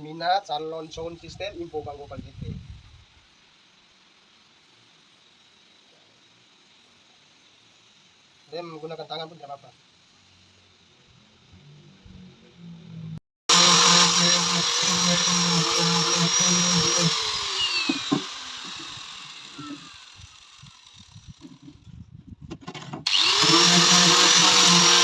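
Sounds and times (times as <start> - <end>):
power drill whining: 13.5 - 21.7, 23.1 - 25.0.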